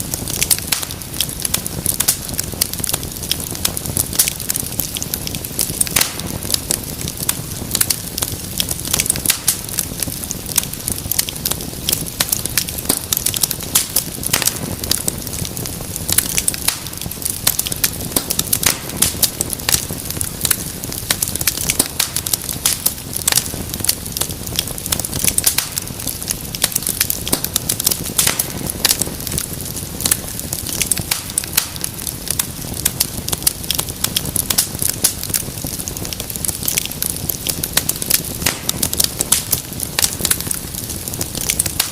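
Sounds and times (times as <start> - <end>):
fireplace fire crackling: 0.0 - 41.9.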